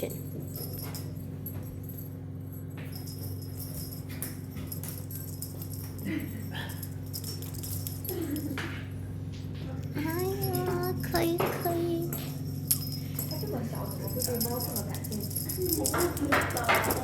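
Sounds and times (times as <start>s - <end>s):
faint jingling: 0.0s - 17.0s
steady background hum: 0.0s - 17.0s.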